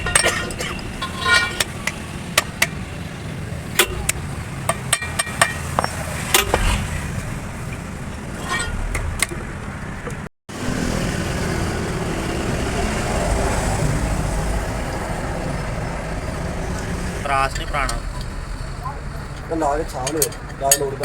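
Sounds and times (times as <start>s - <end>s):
hand tools tapping metal: 0.0s - 2.8s, 3.7s - 6.6s, 19.3s - 21.0s.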